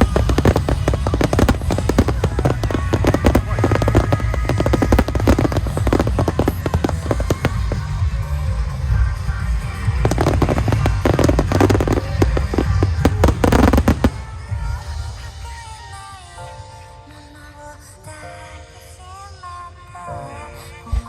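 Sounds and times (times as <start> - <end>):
low booming of fireworks: 0.0 - 15.9
fireworks bursting and crackling: 0.0 - 16.7.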